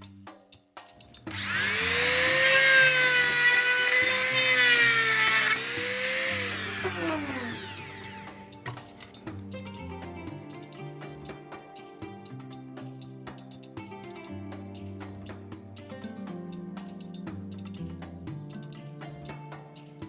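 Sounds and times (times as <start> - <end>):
electric power tool whining: 1.3 - 9.2.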